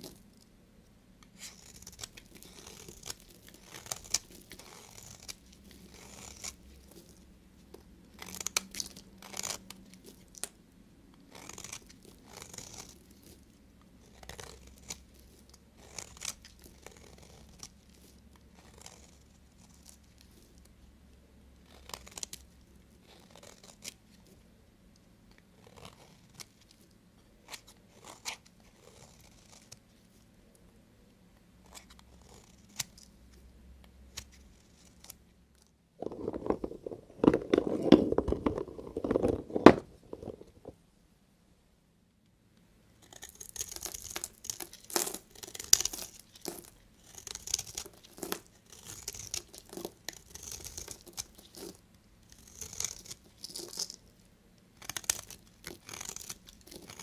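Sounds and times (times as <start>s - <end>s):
knife cutting soap: 1.2s - 10.5s, 43.0s - 54.0s, 54.8s - 57.0s.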